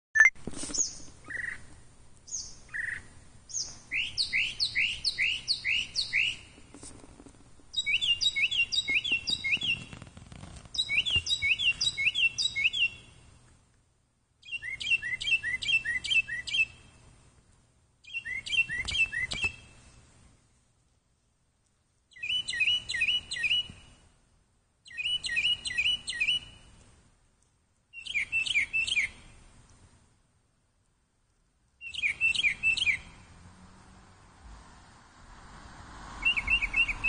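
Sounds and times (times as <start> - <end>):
bird chirping: 0.2 - 6.6, 7.6 - 13.4, 14.4 - 17.0, 18.0 - 20.0, 22.1 - 24.1, 24.8 - 26.8, 27.9 - 29.4, 31.8 - 34.0, 36.0 - 37.0.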